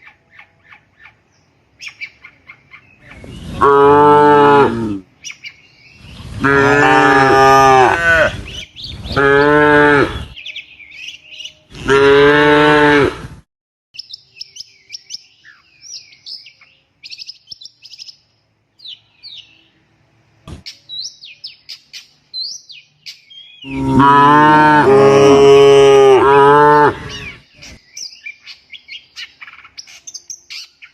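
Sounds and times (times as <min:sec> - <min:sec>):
faint birds chirping: 0:00.0 - 0:12.0, 0:14.0 - 0:25.2, 0:26.2 - 0:30.9
cattle mooing: 0:03.5 - 0:05.0, 0:06.3 - 0:10.4, 0:11.7 - 0:13.3, 0:23.7 - 0:27.3.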